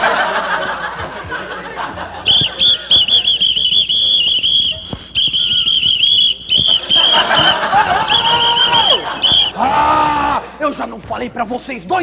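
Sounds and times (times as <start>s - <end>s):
whistle short shrill toots: 2.3s - 7.5s.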